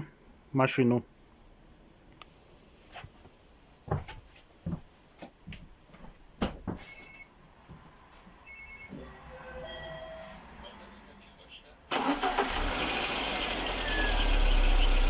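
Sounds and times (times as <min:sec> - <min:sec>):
knocks and clunks: 0:06.4 - 0:06.9.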